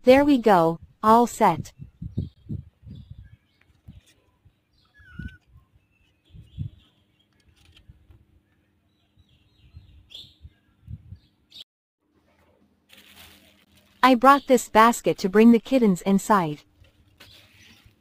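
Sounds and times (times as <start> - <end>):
bird chirps: 1.8 - 7.8, 8.4 - 11.6
bird warbling call: 4.8 - 5.5.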